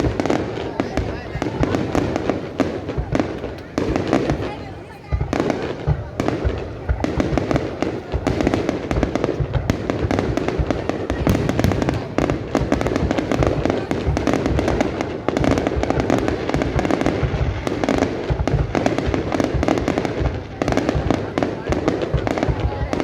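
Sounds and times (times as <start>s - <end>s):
fireworks bangs and crackling: 0.0s - 23.0s.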